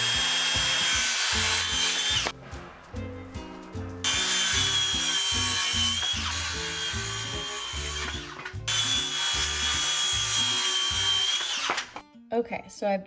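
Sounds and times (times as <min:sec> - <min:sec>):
electric saw cutting wood: 0:00.0 - 0:02.4, 0:04.0 - 0:12.0.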